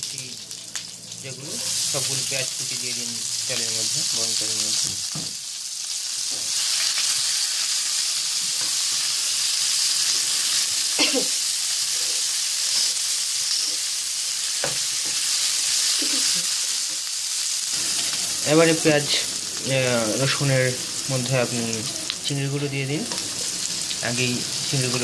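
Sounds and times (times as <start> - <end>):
onions sizzling in hot oil: 0.0 - 25.0.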